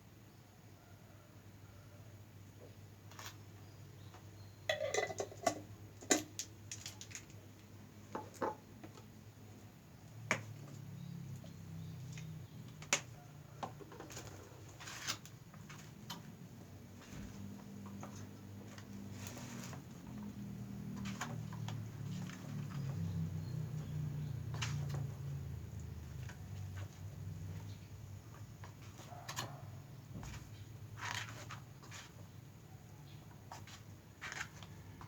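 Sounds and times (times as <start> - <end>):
rustling scrapes: 14.3 - 15.9, 19.0 - 20.0, 31.0 - 32.2.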